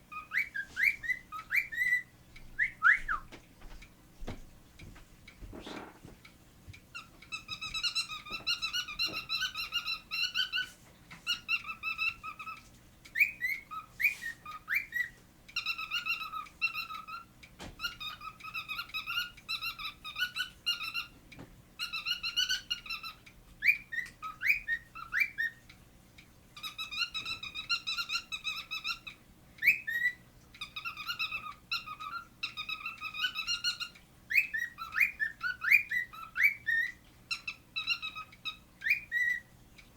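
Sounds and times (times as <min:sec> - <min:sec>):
cockatiel warbling whistles: 0:02.6 - 0:03.3.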